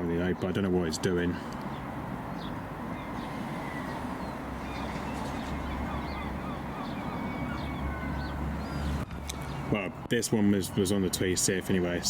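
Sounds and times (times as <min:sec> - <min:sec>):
faint bird chirps: 0:02.4 - 0:09.7.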